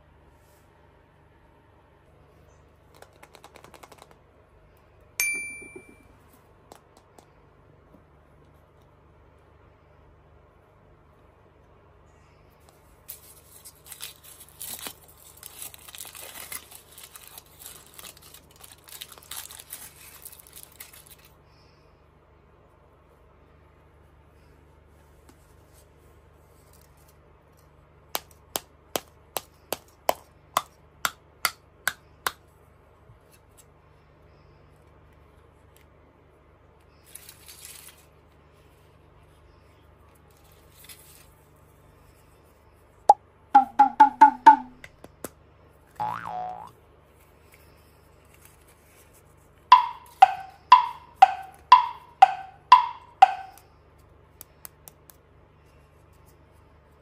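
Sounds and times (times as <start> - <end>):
taps on hollow chocolate egg: 28.1 - 32.4, 49.7 - 53.6
wood-block tick-tock knocks: 43.6 - 44.9, 49.7 - 53.6.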